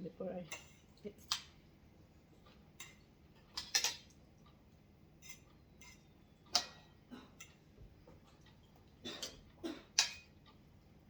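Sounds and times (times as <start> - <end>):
utensils clicking against dishes: 2.8 - 4.1.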